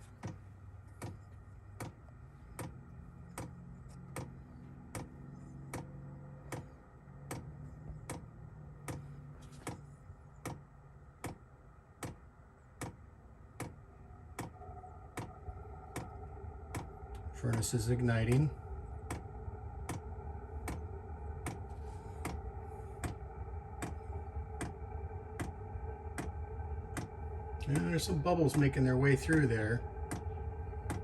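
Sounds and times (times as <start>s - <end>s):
higher hum: 0.0s - 31.0s
low hum: 0.0s - 31.0s
fuel pump clicking: 10.4s - 13.8s.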